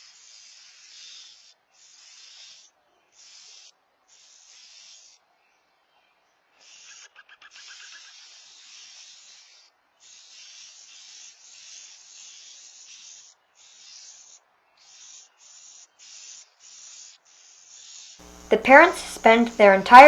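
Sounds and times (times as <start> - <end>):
faint outdoor hiss: 8.2 - 20.0.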